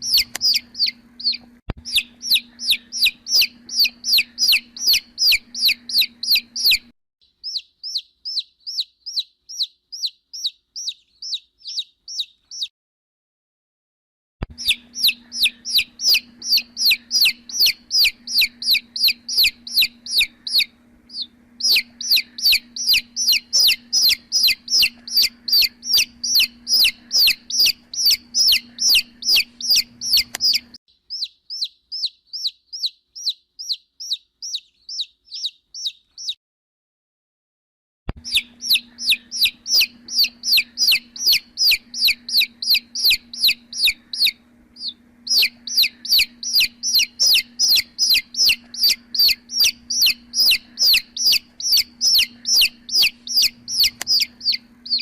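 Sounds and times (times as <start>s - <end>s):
steady low hum: 0.0s - 6.9s, 14.4s - 30.8s, 38.2s - 55.0s
baby chicks peeping: 0.0s - 12.7s, 14.4s - 36.4s, 38.1s - 55.0s.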